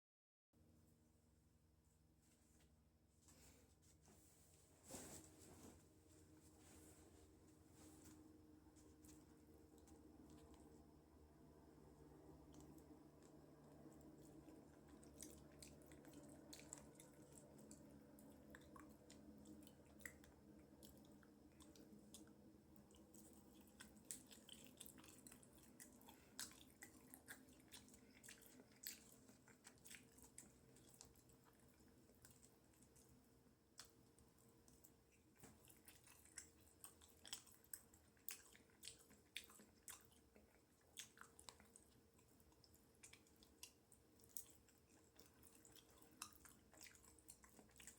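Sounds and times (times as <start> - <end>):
person chewing food: 8.8 - 47.9.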